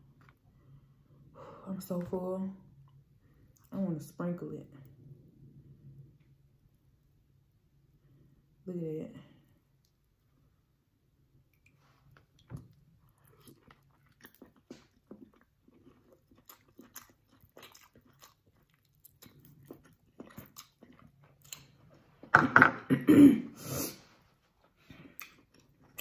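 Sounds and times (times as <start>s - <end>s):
wet chewing mouth noises: 11.6s - 21.8s.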